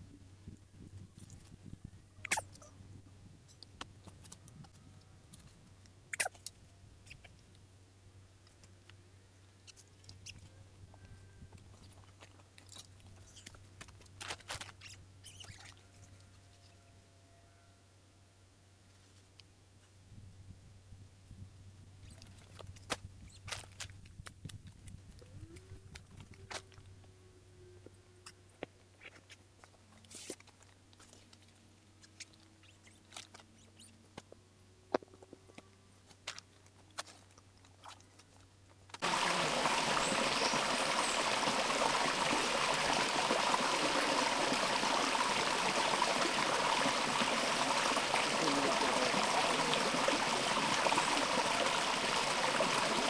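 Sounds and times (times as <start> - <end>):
flowing stream water: 39.0 - 53.0.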